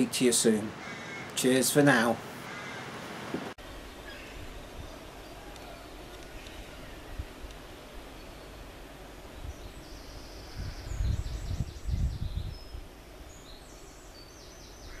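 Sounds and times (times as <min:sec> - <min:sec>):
small birds chirping in trills: 0:03.6 - 0:15.0.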